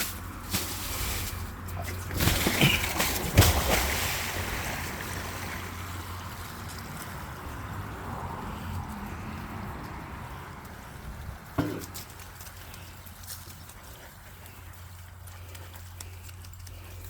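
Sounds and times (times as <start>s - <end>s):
rustles: 0.0s - 4.9s, 10.6s - 17.0s.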